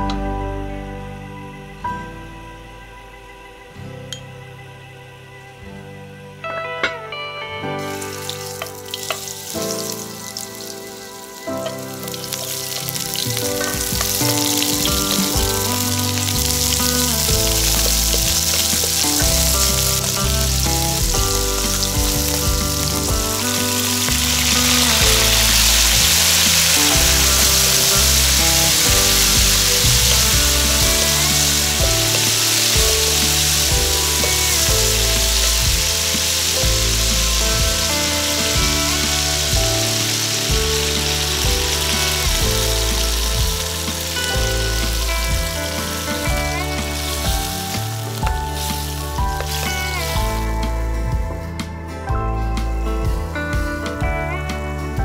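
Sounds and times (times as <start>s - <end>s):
background music: 0.0s - 55.0s
meat sizzling in a pan: 7.8s - 50.6s.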